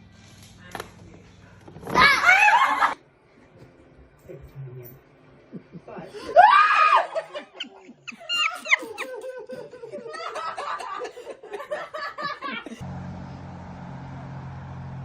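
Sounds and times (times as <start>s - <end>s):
people laughing: 2.2s - 3.0s, 5.4s - 12.8s.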